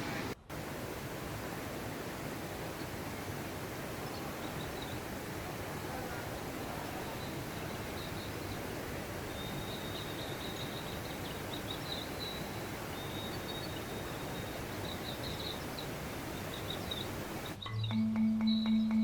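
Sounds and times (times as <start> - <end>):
mountain stream rushing: 0.0 - 17.6
high-pitched chirping calls: 6.9 - 19.0.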